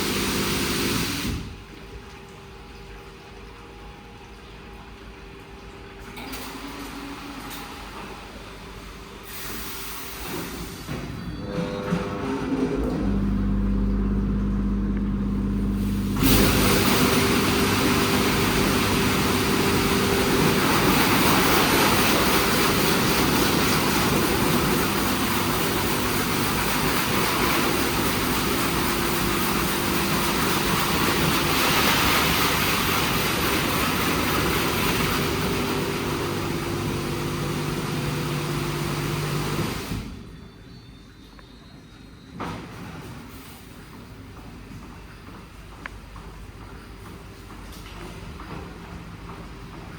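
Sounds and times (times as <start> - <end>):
car wash machine hum: 0.0 - 2.0, 11.4 - 40.3
spraying water hiss: 9.2 - 10.8, 15.6 - 40.0.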